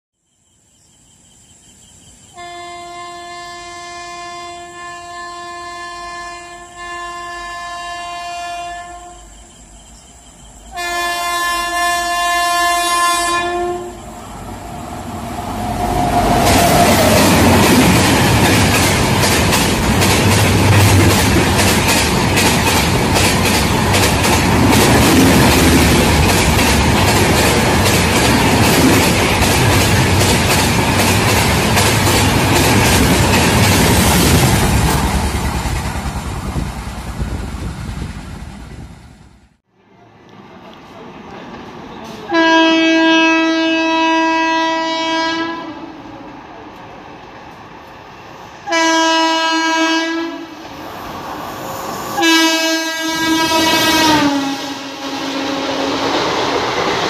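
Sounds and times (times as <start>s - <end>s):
locomotive horn blasts: 2.4s - 9.3s, 10.7s - 14.1s, 42.3s - 45.8s, 48.6s - 50.6s, 52.2s - 55.6s
train rushing past: 2.4s - 57.0s.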